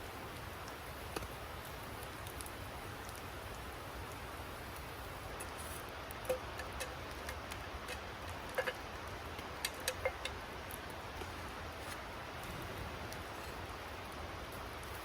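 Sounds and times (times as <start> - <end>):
steady hiss: 0.0 - 15.0
sharp ticks and clicks: 5.4 - 11.3.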